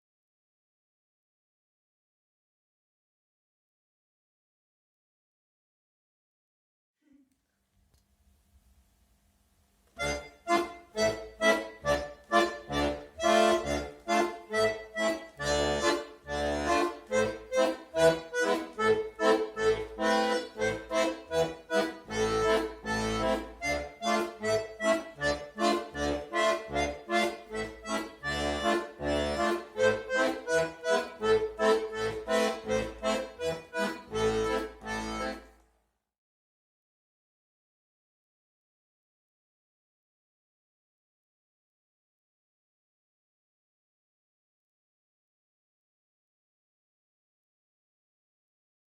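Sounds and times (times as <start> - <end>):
accordion playing lively tune: 10.0 - 35.6.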